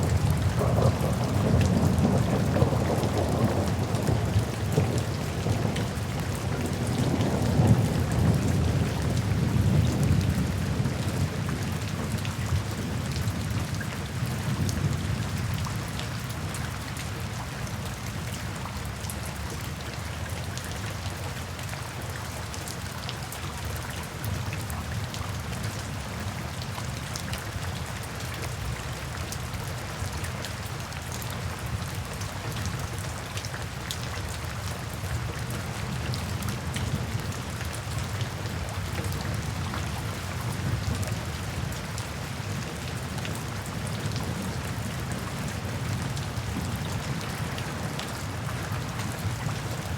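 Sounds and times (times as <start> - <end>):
thunder rolling: 0.0 - 5.8
rain falling: 0.0 - 49.9.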